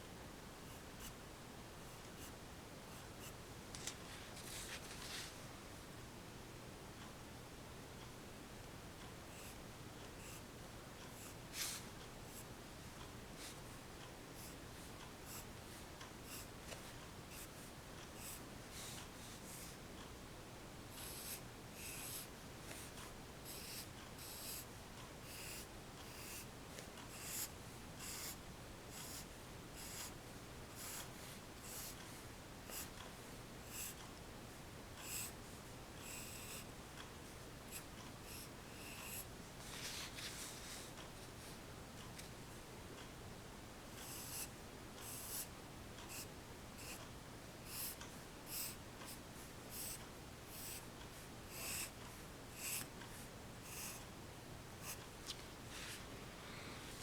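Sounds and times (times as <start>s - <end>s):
pencil sketching on paper: 10.2s - 10.4s, 11.1s - 12.5s, 15.2s - 15.5s, 16.2s - 16.5s, 17.3s - 17.6s, 18.2s - 19.8s, 21.0s - 26.5s, 27.1s - 30.2s, 30.8s - 33.0s, 33.6s - 34.0s, 35.0s - 35.4s, 36.0s - 36.7s, 37.7s - 39.3s, 44.0s - 45.5s, 46.1s - 47.0s, 47.7s - 50.9s, 51.5s - 54.0s, 54.8s - 55.0s.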